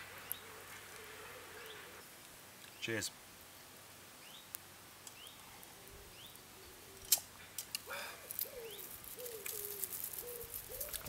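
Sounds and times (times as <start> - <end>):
bird chirping: 0.0 - 2.9, 4.2 - 7.2, 8.3 - 11.0
pigeon cooing: 0.2 - 2.0, 7.9 - 11.0.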